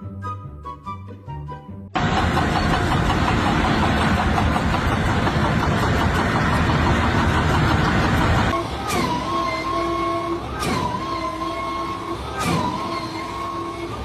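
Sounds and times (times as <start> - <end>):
engine running loudly: 2.0 - 8.9.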